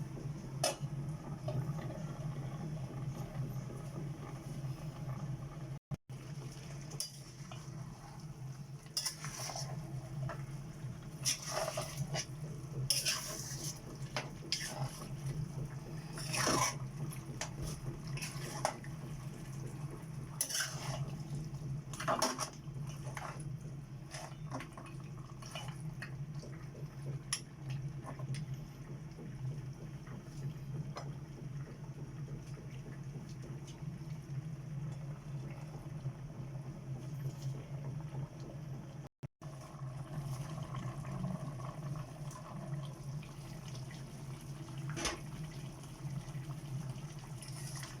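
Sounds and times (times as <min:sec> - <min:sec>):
utensil scraping a cooking pot: 0:09.0 - 0:10.3, 0:11.2 - 0:17.0, 0:17.6 - 0:18.9, 0:20.4 - 0:21.2.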